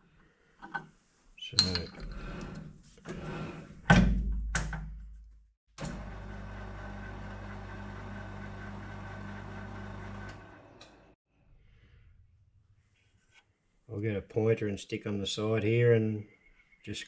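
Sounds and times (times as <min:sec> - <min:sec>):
metal lathe running: 0:05.9 - 0:11.0.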